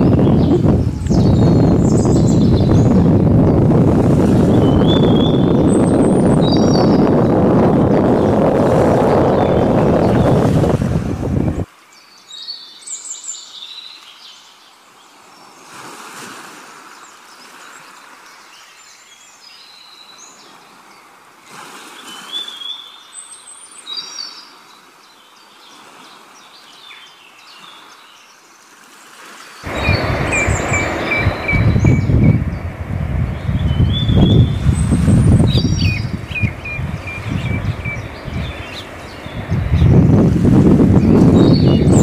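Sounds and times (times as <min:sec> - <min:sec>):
birds chirping: 0:00.0 - 0:03.9, 0:04.5 - 0:14.6, 0:29.6 - 0:42.0
wind and water rushing: 0:00.0 - 0:42.0.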